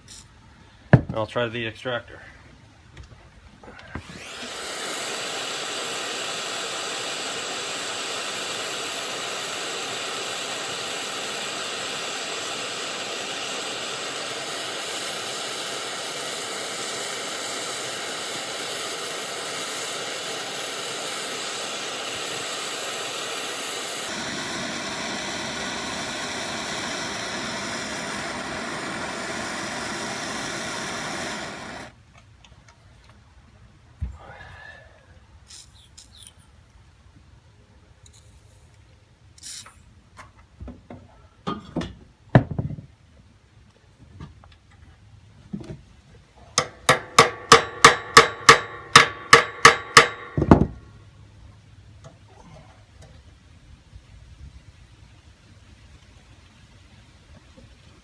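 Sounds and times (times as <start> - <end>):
propane torch hissing: 4.0 - 32.0, 39.4 - 39.8.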